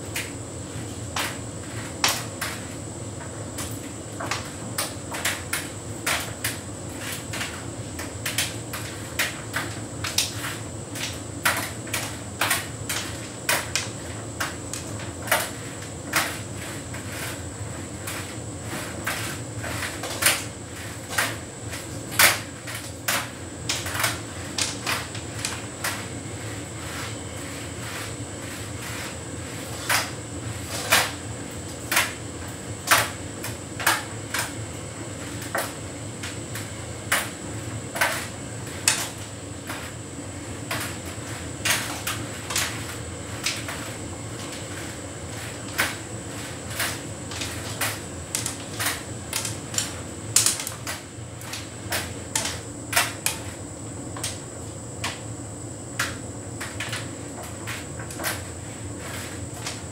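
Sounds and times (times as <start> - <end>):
tumble dryer humming: 0.0 - 59.9.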